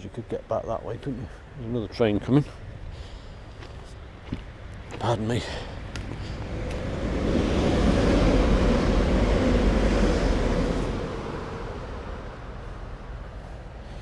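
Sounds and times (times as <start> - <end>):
train passing with rushing rumble: 5.0 - 13.8.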